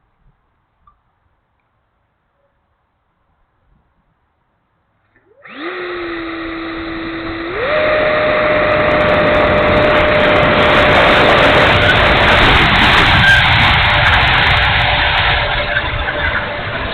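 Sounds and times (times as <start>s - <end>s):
electric fan whine: 5.1s - 16.9s
rush of air: 7.4s - 16.9s.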